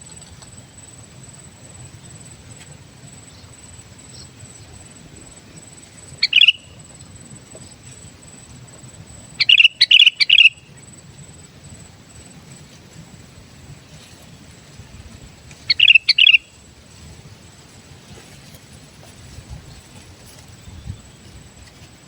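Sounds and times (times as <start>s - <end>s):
bird calling: 1.7s - 8.1s, 9.1s - 11.0s, 13.9s - 21.4s.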